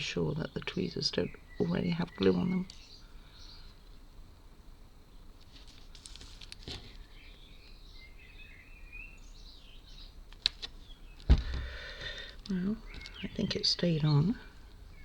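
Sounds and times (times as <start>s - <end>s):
faint bird chirps: 0.0s - 4.0s, 10.8s - 15.0s.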